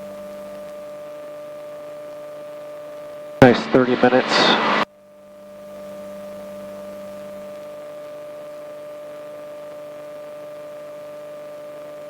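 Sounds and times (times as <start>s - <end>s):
electrical hum and whine: 3.4s - 4.9s.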